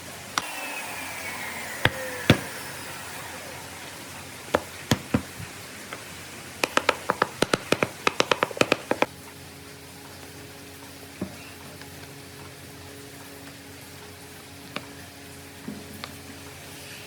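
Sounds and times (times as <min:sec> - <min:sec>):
falling whistle-like tone: 0:00.4 - 0:05.0.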